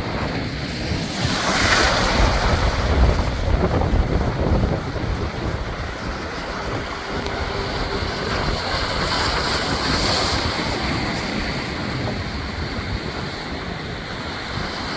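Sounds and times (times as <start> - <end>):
surf breaking over rocks: 0.0 - 14.9
wind buffeting microphone: 0.0 - 14.9.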